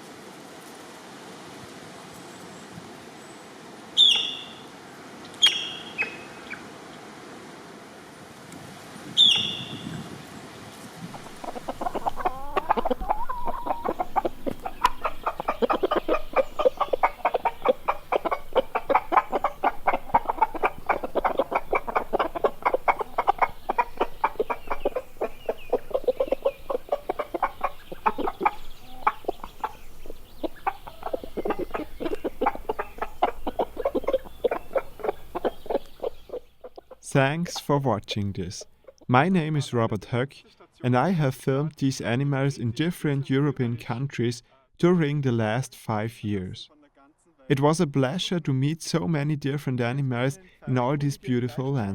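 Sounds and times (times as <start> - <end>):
chickens clucking: 11.0 - 39.6.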